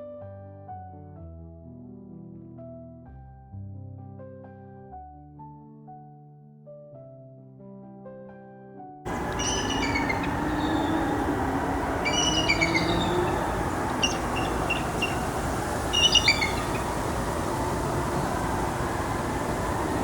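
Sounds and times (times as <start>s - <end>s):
eagles chirping: 9.1s - 20.0s
loud steady rumble: 9.1s - 20.0s.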